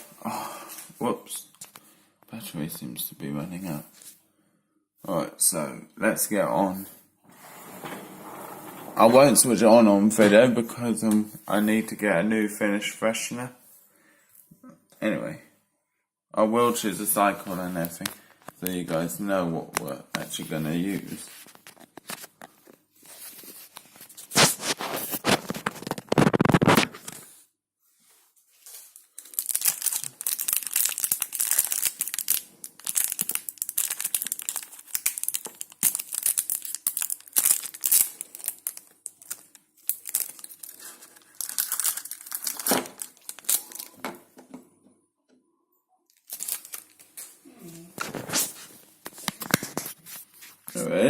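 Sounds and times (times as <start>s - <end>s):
plastic packaging crinkling and tearing: 23.1s - 27.3s, 28.8s - 44.0s, 46.1s - 47.4s, 48.0s - 50.9s.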